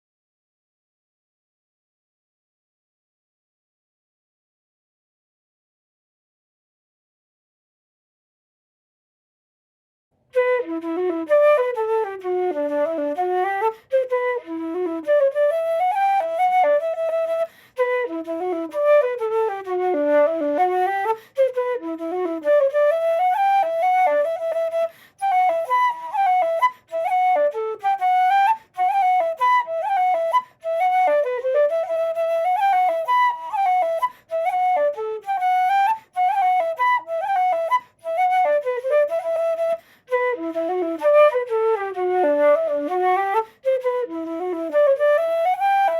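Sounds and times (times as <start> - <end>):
wooden flute dance tune: 10.4 - 45.9
quick breaths: 17.5 - 17.8, 24.9 - 25.2, 39.8 - 40.1.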